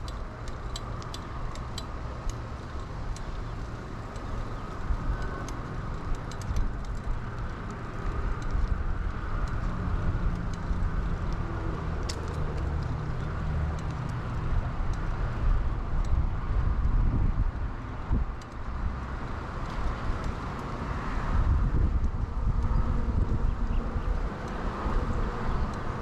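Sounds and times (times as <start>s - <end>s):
bicycle clicks and rattles: 0.0s - 26.0s
wind rumble on microphone: 0.0s - 26.0s.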